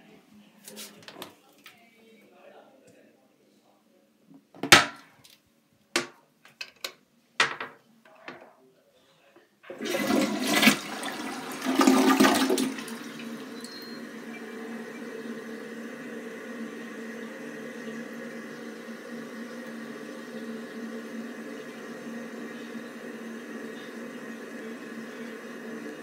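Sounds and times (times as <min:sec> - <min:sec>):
faint fill valve hum: 0:08.9 - 0:26.0
toilet flushing: 0:09.6 - 0:26.0
toilet tank refilling hiss: 0:09.7 - 0:26.0.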